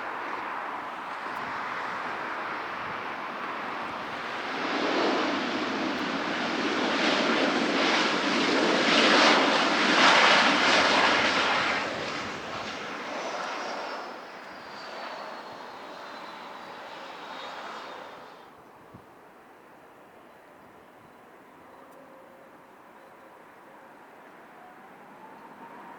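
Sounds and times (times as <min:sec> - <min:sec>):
jet engines roaring: 0:00.0 - 0:18.7.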